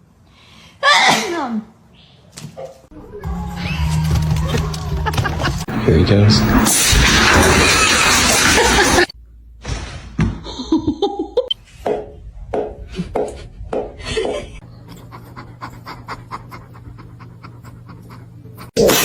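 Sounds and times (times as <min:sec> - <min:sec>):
animal panting: 0:14.6 - 0:18.8.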